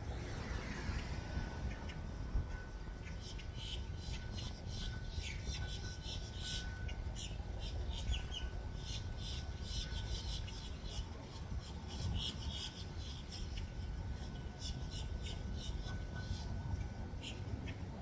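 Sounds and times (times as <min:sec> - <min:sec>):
steady low rumble: 0:00.0 - 0:06.0
faint steady whine: 0:00.0 - 0:18.0.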